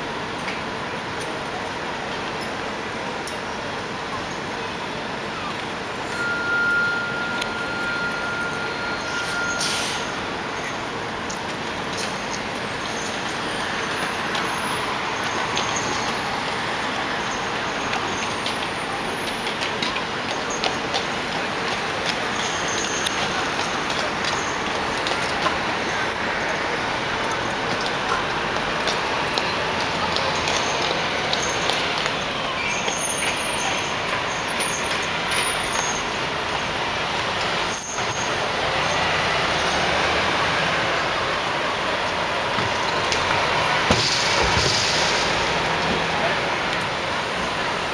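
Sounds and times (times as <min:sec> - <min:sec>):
city street traffic: 0:00.0 - 0:47.9.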